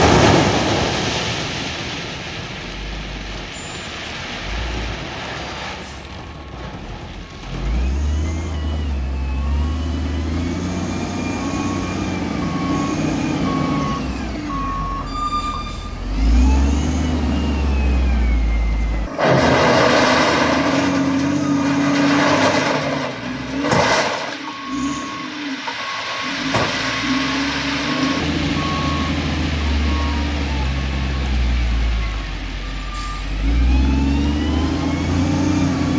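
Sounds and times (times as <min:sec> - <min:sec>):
heavy diesel machine engine revving: 0:07.4 - 0:23.8, 0:27.2 - 0:35.9
backup alarm beeping: 0:11.0 - 0:19.1, 0:24.4 - 0:26.0, 0:28.2 - 0:35.2.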